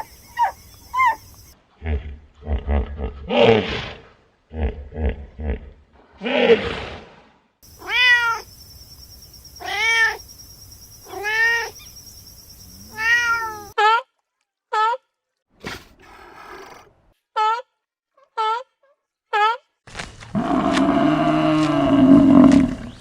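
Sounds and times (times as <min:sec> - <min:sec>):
cat meowing: 0:12.9 - 0:13.8.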